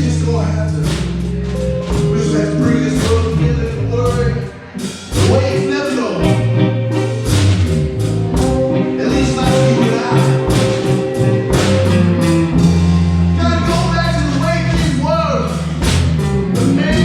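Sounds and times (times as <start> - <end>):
held bass notes: 0.0 - 17.0
steady drum beat: 0.0 - 17.0
electric guitar: 1.3 - 13.9
harmonica: 4.7 - 13.2.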